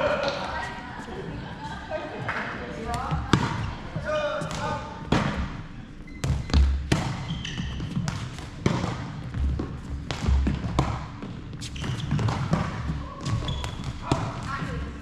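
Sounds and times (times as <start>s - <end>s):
shoe squeaks: 5.9s - 8.0s, 11.6s - 12.4s, 13.3s - 13.9s
racket hitting ball: 8.0s - 11.1s.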